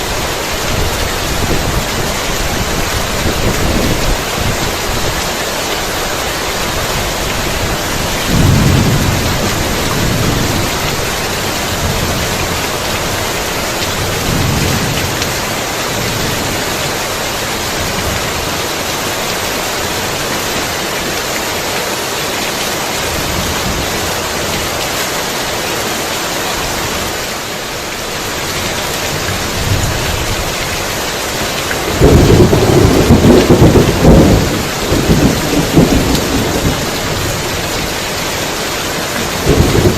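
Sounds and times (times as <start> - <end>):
heavy rain falling: 0.0 - 39.9
rolling thunder: 8.2 - 13.1, 31.9 - 37.9, 39.2 - 39.9.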